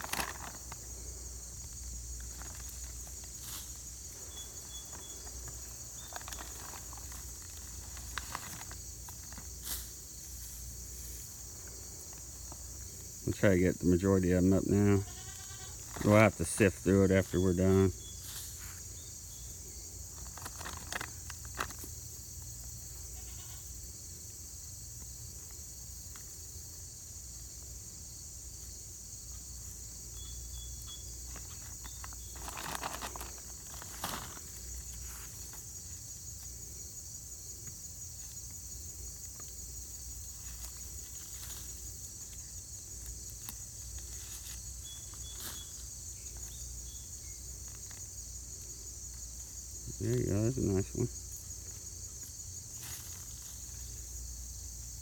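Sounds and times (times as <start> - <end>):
hands digging in loose soil: 0.0 - 12.7, 31.3 - 35.9
insects chirping: 0.0 - 55.0.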